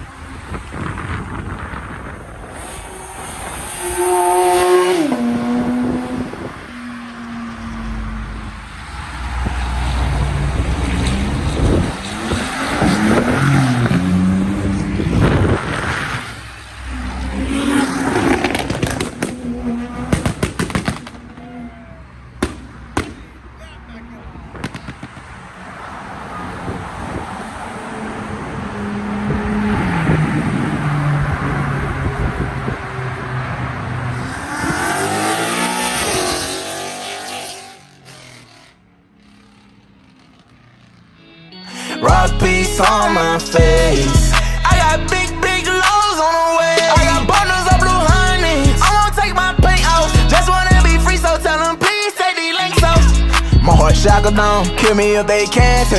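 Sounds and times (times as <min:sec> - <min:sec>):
car engine revving: 0:00.2 - 0:23.0, 0:24.5 - 0:41.1, 0:42.1 - 0:52.0
exhaust pops and crackles: 0:18.3 - 0:21.4, 0:22.4 - 0:23.4, 0:24.5 - 0:25.4.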